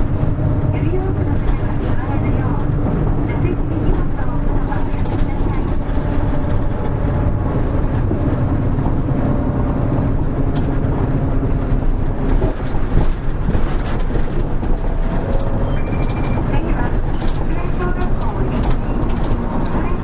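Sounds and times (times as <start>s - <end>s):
bus diesel engine drone: 0.0s - 20.0s
cabin clicks and rattles: 10.4s - 20.0s.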